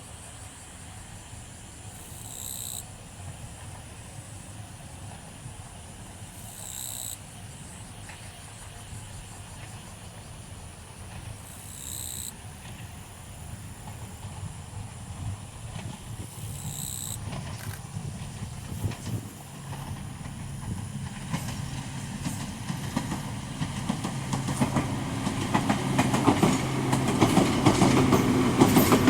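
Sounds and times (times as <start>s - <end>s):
insects buzzing: 0.1s - 3.4s, 5.7s - 29.0s
short high insect call: 1.8s - 3.0s, 6.2s - 10.5s, 11.4s - 19.8s.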